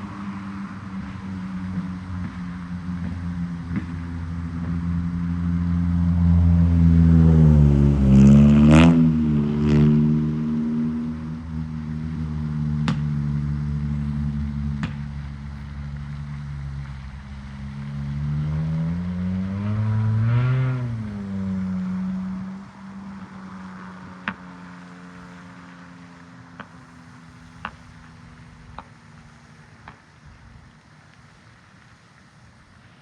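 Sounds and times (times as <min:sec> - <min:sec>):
motor engine running: 0:11.1 - 0:30.4.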